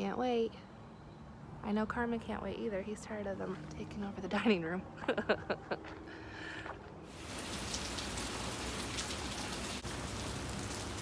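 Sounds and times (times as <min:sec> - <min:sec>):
heavy rain pattering: 0:07.1 - 0:11.0.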